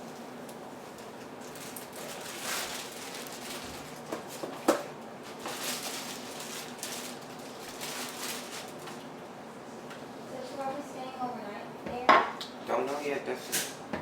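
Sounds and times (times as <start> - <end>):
plastic bag rustling: 0.0 - 9.2.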